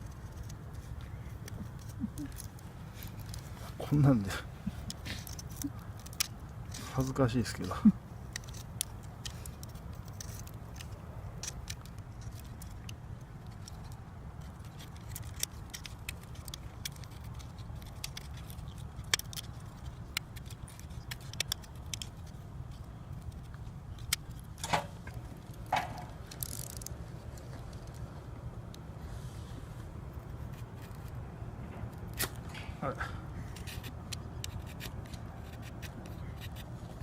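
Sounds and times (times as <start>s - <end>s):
knife blade scraping wood: 0.0s - 7.2s, 33.5s - 37.0s.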